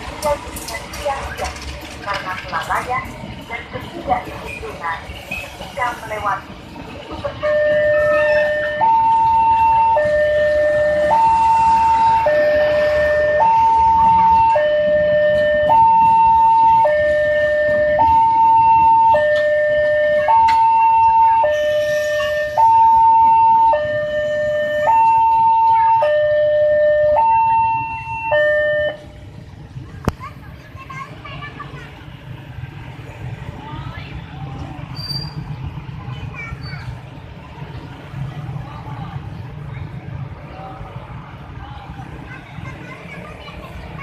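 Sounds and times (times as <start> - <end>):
two-tone crossing alarm: 7.3 - 29.3.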